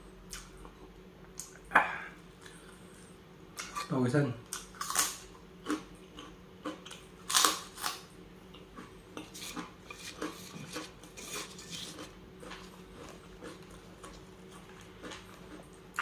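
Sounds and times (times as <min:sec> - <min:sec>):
quiet chewing: 0:08.5 - 0:16.0.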